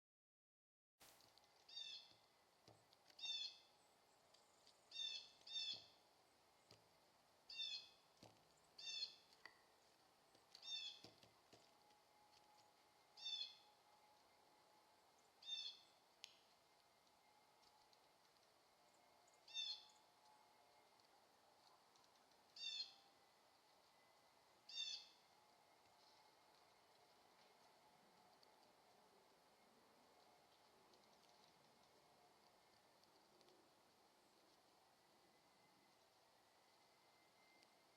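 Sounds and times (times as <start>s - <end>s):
wren calling: 1.6s - 3.8s, 4.8s - 6.0s, 7.5s - 8.0s, 8.7s - 9.4s, 10.5s - 11.2s, 13.2s - 13.7s, 15.2s - 16.0s, 19.0s - 20.1s, 22.5s - 23.1s, 23.9s - 25.3s.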